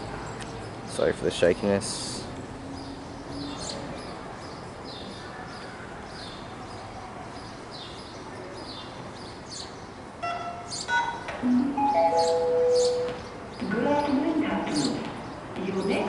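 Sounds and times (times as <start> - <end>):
bird chirping: 2.2 - 15.4.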